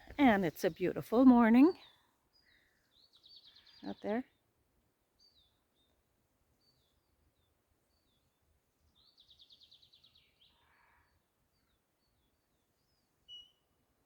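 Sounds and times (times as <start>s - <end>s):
bird trill: 13.2s - 13.7s.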